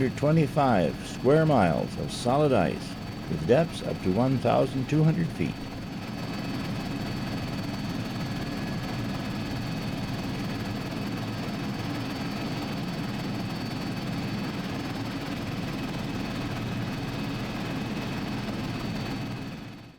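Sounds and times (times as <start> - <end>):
high whine: 0.0 - 5.8
helicopter engine and rotor drone: 0.0 - 19.9.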